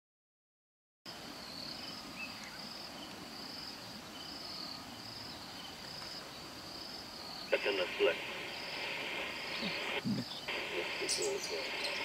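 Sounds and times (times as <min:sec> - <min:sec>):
faint bird call: 0:07.4 - 0:12.0
insect trilling: 0:07.5 - 0:12.0.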